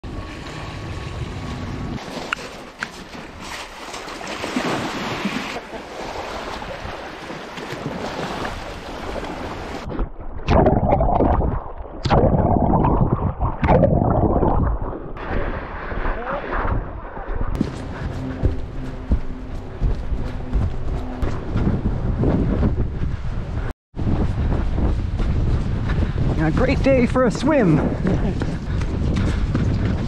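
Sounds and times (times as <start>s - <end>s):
waves on lake shore: 0.0s - 9.9s, 26.3s - 28.6s
wind gusts buffeting microphone: 12.5s - 30.0s.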